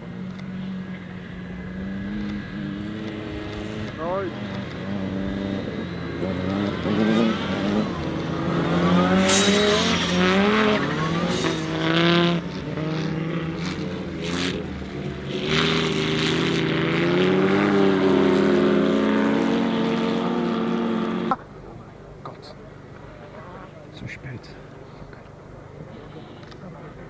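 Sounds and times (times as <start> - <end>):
car engine revving through gears: 0.2 - 21.4
sharp bursts of noise: 6.8 - 12.7.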